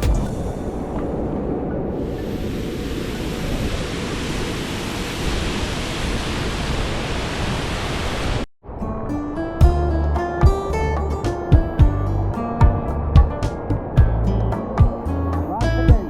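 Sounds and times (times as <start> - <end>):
music: 9.0 - 16.0.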